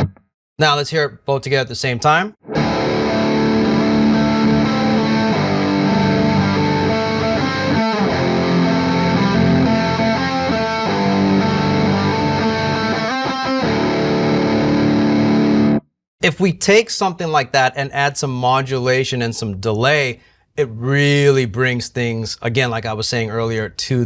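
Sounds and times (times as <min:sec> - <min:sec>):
electric guitar riff: 0:00.0 - 0:00.2, 0:02.4 - 0:15.9
electric guitar chords: 0:02.4 - 0:15.9.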